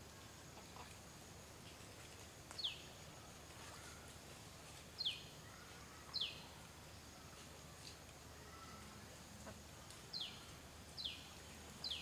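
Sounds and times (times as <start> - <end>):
faint outdoor ambience: 0.0 - 12.0.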